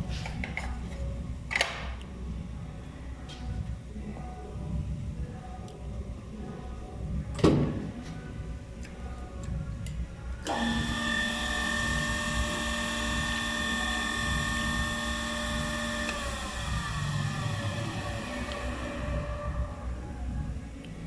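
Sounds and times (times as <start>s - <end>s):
electric motor whining: 10.4s - 19.8s.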